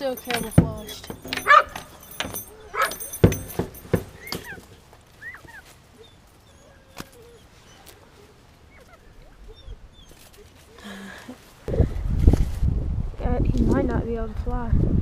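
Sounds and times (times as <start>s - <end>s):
sharp knocks: 0.2s - 4.8s
dogs whining: 0.3s - 11.0s.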